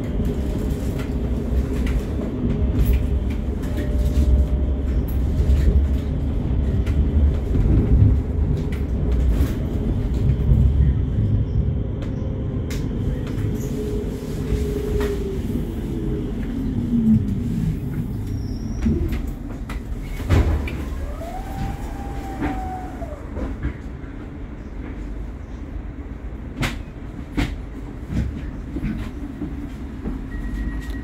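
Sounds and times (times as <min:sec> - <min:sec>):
train rumble inside carriage: 0:00.0 - 0:31.0
train motor whine: 0:20.5 - 0:23.8.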